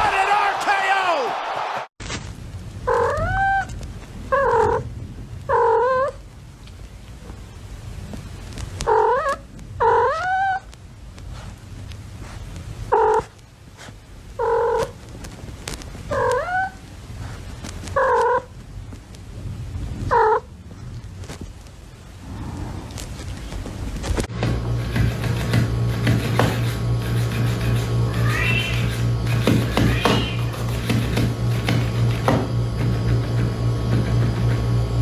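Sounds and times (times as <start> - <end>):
steady low rumble: 16.8 - 24.9
cat meowing: 28.1 - 28.9, 29.7 - 30.5.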